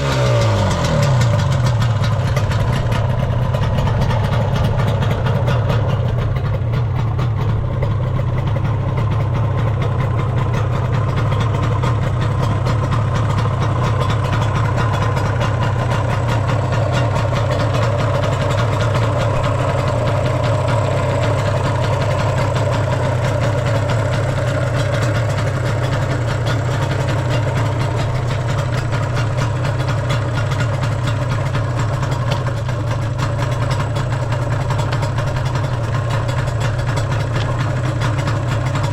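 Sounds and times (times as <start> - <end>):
two-stroke engine idling: 0.0 - 38.9.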